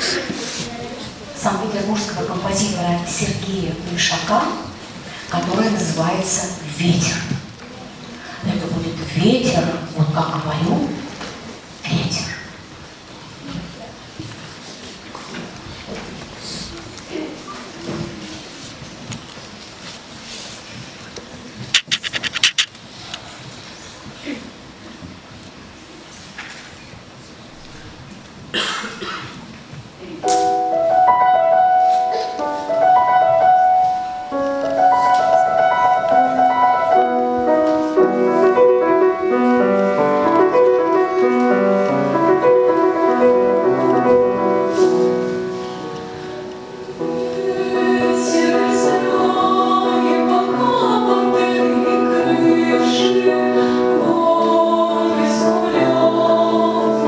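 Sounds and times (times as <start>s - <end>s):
piano accompaniment: 30.2s - 57.0s
girls' vocal ensemble singing: 46.6s - 57.0s.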